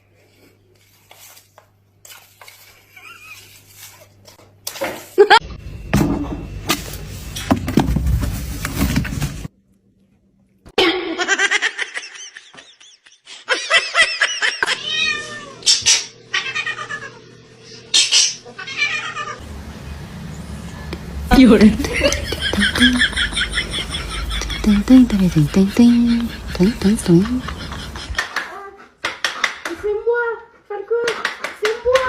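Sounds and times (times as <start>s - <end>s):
cat meowing: 14.7s - 15.6s, 16.3s - 17.2s, 18.5s - 19.4s.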